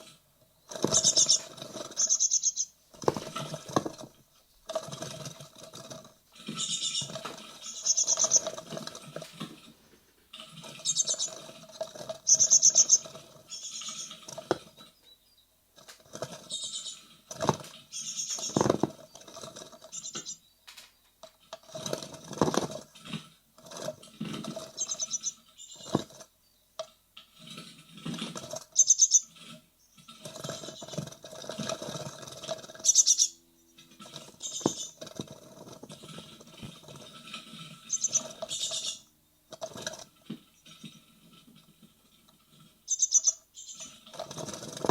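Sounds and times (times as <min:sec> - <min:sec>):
nestlings scratching and scrabbling: 0:00.0 - 0:15.2, 0:15.8 - 0:44.9
high rapid bird calls: 0:00.7 - 0:03.6, 0:06.4 - 0:08.8, 0:10.6 - 0:14.4, 0:16.4 - 0:17.1, 0:17.8 - 0:20.7, 0:24.7 - 0:25.9, 0:28.7 - 0:31.1, 0:32.0 - 0:35.6, 0:37.8 - 0:39.2, 0:42.9 - 0:44.7.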